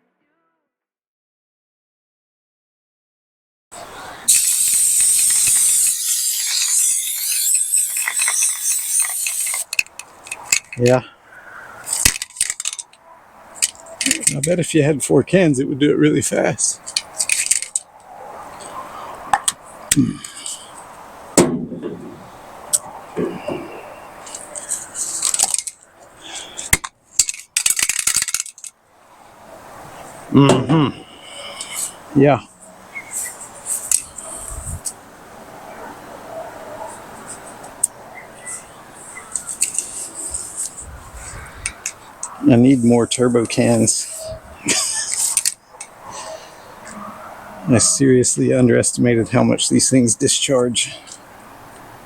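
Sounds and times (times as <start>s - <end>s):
aerosol can spraying: 4.3s - 9.8s.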